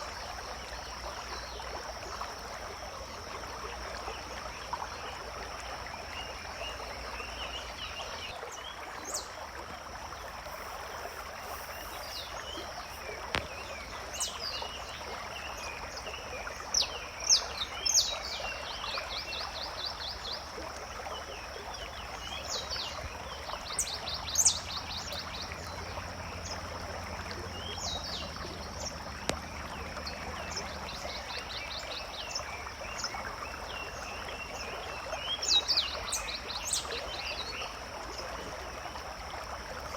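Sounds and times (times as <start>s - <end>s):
even hiss: 10.2s - 14.3s.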